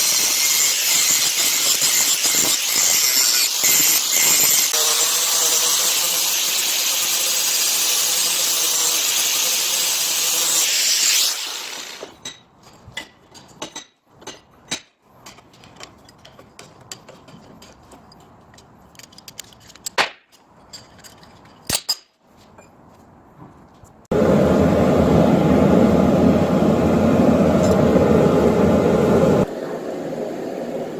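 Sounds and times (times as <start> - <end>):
power tool grinding: 0.0 - 12.2
metal and tools clicking and knocking: 12.1 - 22.8.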